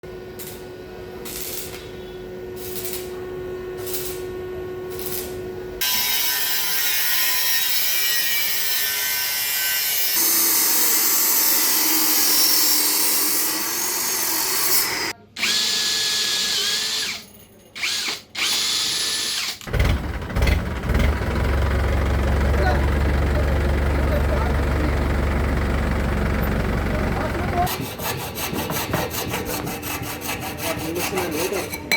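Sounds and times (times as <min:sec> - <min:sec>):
machine cutter whining: 0:05.8 - 0:17.2, 0:17.8 - 0:30.2.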